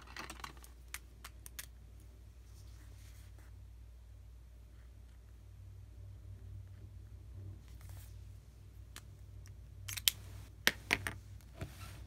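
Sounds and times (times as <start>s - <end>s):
faint soft rustle: 2.3s - 3.6s, 7.6s - 8.6s.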